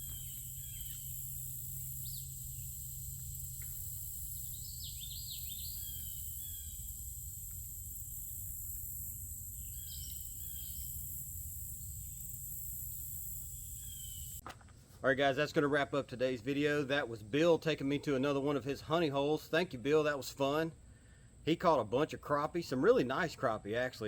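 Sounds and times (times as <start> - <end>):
low steady rumble: 0.0 - 13.4
bird singing: 0.0 - 14.4
insects droning: 0.0 - 14.4.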